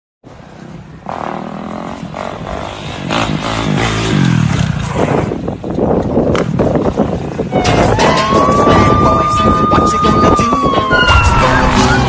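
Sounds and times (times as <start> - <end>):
motorcycle engine revving: 1.0 - 5.5.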